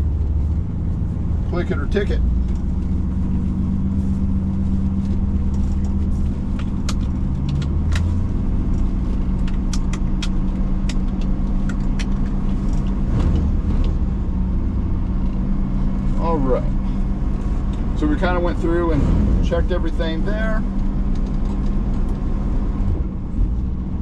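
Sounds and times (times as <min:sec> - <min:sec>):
car engine idling: 0:00.0 - 0:24.0
sharp clicks and ticks: 0:05.4 - 0:08.1, 0:08.7 - 0:14.0.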